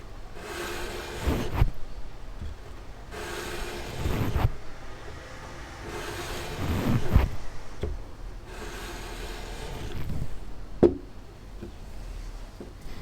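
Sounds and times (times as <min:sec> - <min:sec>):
metal part scraping on sandpaper: 0:00.3 - 0:01.8, 0:02.6 - 0:07.8, 0:08.4 - 0:10.5.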